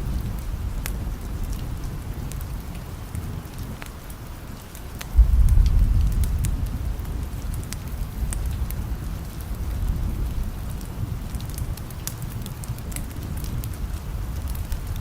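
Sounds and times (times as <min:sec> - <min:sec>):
steady rain: 0:00.0 - 0:15.0
wood fire crackling: 0:04.6 - 0:15.0
distant thunder rumble: 0:05.2 - 0:10.5.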